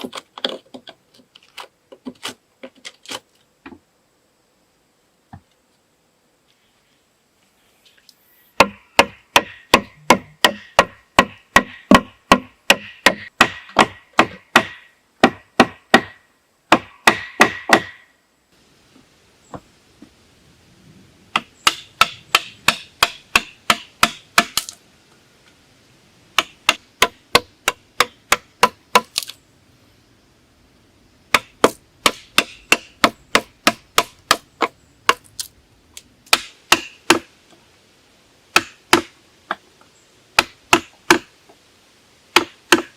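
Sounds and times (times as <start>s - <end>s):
tool chopping wood: 8.6s - 18.0s, 21.3s - 24.8s, 26.4s - 29.4s, 31.3s - 35.5s, 36.3s - 37.3s, 38.5s - 39.6s, 40.4s - 41.3s, 42.3s - 42.9s.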